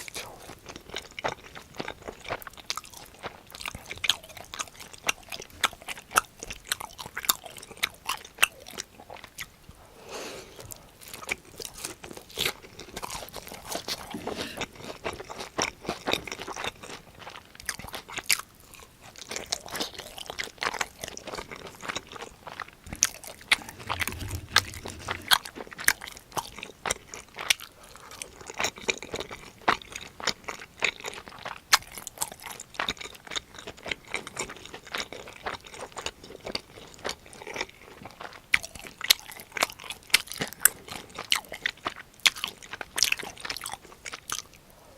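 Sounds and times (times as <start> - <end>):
crunching bites and chewing: 22.9 - 25.4
low thump: 23.0 - 25.4.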